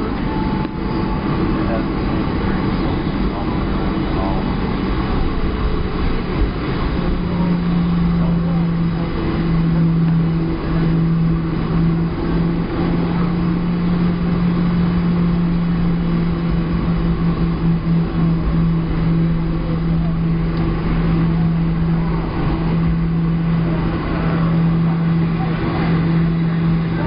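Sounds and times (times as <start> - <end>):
airliner cabin engine drone: 0.0 - 27.0.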